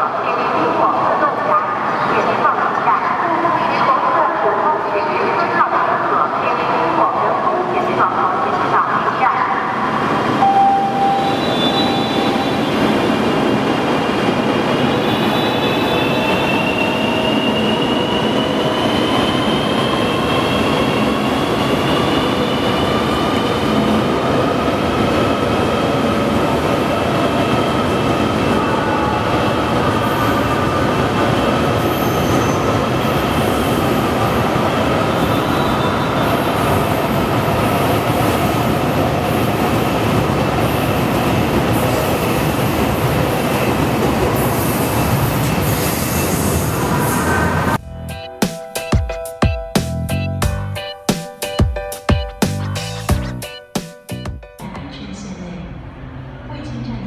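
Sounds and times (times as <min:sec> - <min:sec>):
electric train rushing past: 0:08.0 - 0:49.5
train whine: 0:10.2 - 0:37.4.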